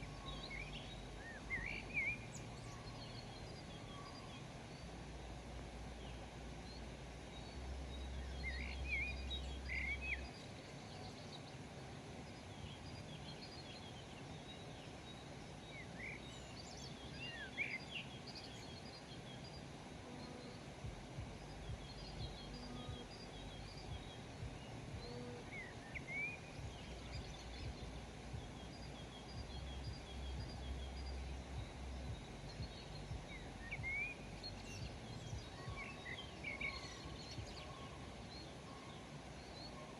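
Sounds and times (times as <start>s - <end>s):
faint outdoor ambience: 0.0s - 39.9s
wild birds chirping: 0.0s - 39.9s
low rumble: 20.8s - 25.8s, 26.4s - 35.8s.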